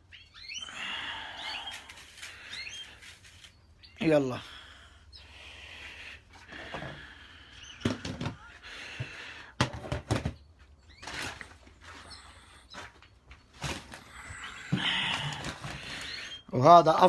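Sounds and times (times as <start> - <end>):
objects knocking and clattering: 7.8 - 8.4, 9.0 - 10.5.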